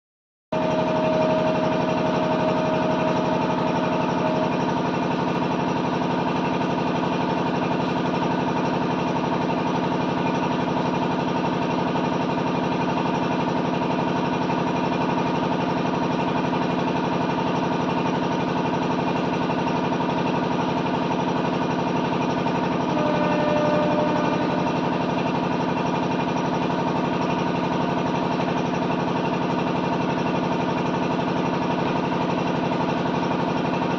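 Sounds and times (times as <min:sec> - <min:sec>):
brief higher tone: 0:00.6 - 0:06.6, 0:21.7 - 0:27.6
engine idling: 0:00.6 - 0:33.9.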